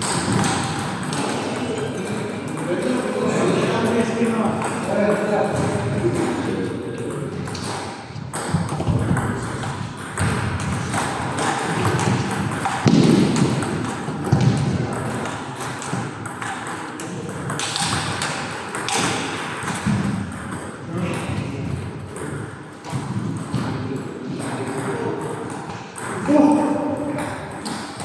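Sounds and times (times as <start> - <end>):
table tennis balls clicking: 0.0 - 6.4, 7.0 - 20.8
murmur of voices: 0.2 - 8.3, 10.8 - 28.0.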